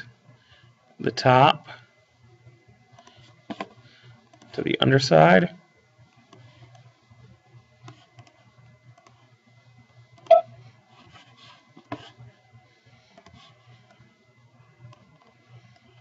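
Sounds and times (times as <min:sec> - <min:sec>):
faint low hum: 0:00.0 - 0:16.0
computer mouse clicking: 0:04.2 - 0:04.5, 0:07.8 - 0:09.2, 0:13.1 - 0:14.0, 0:14.8 - 0:15.9.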